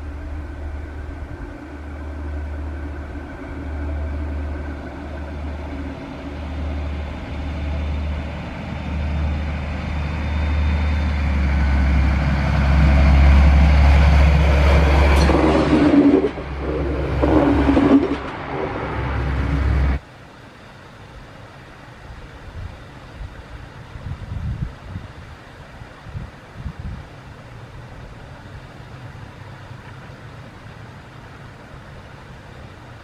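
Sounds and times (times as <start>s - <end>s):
rail vehicle rattling: 0.0s - 20.0s
rail vehicle humming: 0.0s - 33.0s.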